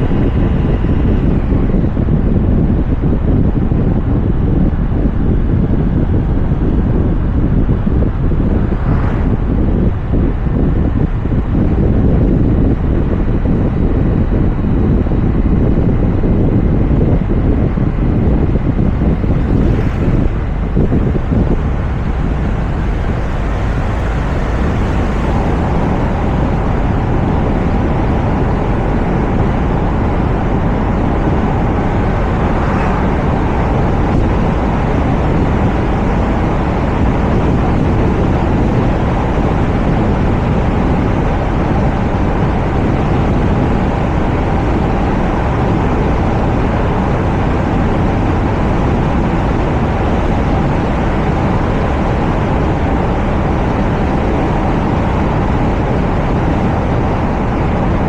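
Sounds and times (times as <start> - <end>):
road and wind noise: 0.0 - 58.0
tyres rushing on road: 18.0 - 56.6.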